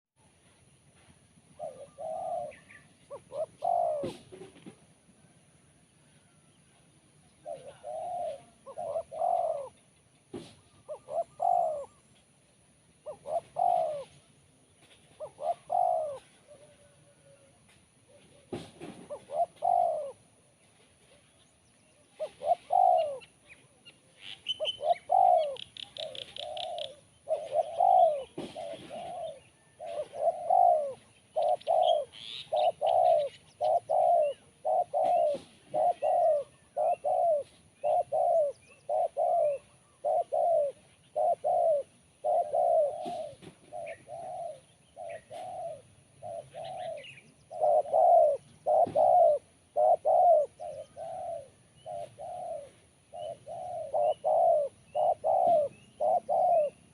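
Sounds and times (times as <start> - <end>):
dove cooing: 1.5 - 6.6, 7.2 - 21.4, 22.0 - 56.9
small bird chirps: 21.4 - 56.9.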